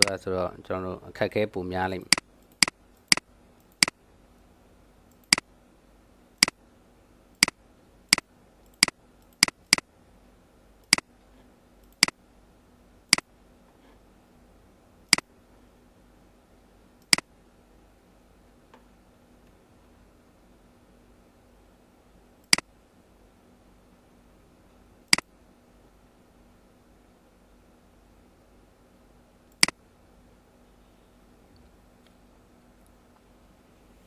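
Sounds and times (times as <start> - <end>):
faint steady hum: 0.0 - 34.0
computer mouse clicking: 2.0 - 4.0, 5.1 - 5.5, 7.4 - 9.9, 10.8 - 11.1, 11.8 - 12.2, 17.0 - 17.3, 22.5 - 22.7, 29.5 - 29.8.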